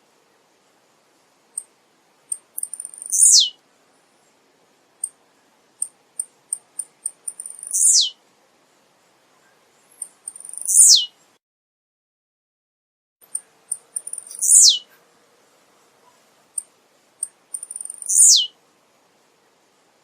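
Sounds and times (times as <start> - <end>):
bird song with high ticks and sweep: 1.5 - 11.4, 13.2 - 15.0, 16.0 - 18.6.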